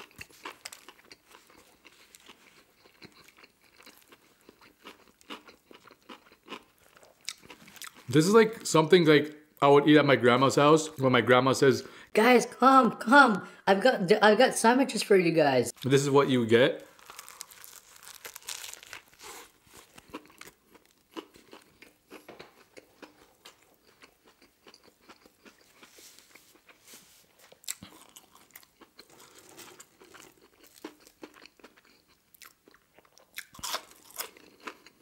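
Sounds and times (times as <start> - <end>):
biting and chewing sandwich: 0.0 - 8.1, 16.8 - 35.0.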